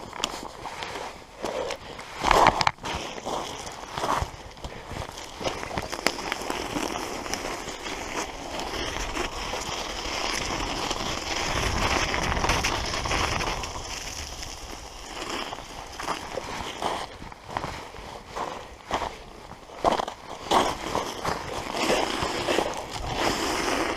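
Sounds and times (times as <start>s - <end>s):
bike tyres crunching snow: 0.0s - 23.9s
wind noise on microphone: 8.7s - 19.0s, 21.2s - 23.9s.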